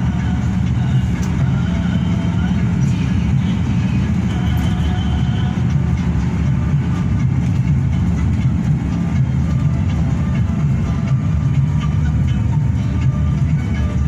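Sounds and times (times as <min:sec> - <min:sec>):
bus diesel engine drone: 0:00.0 - 0:14.0
road noise inside cabin: 0:00.0 - 0:14.0.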